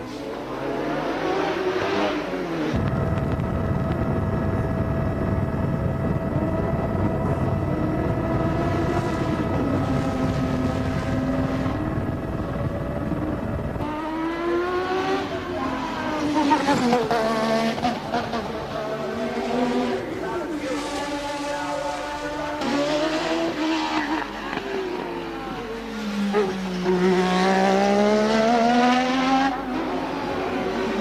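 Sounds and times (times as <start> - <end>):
race car engine revving: 0.3 - 31.0
mechanical drone with whine: 2.1 - 16.5.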